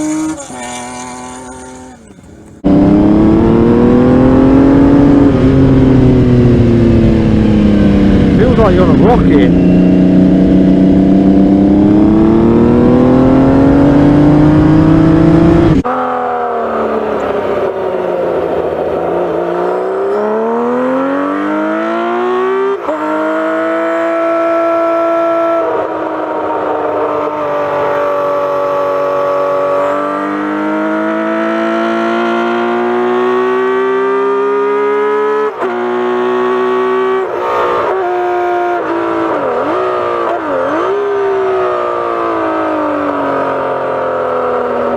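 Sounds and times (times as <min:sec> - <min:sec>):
motorcycle engine accelerating: 0:00.0 - 0:44.9.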